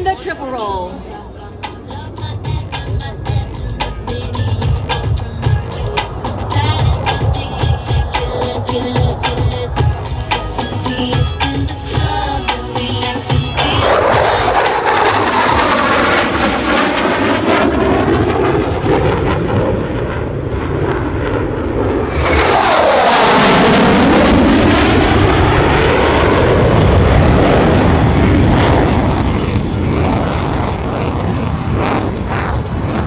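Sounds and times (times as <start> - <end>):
fighter jet flying past: 13.7 - 33.0.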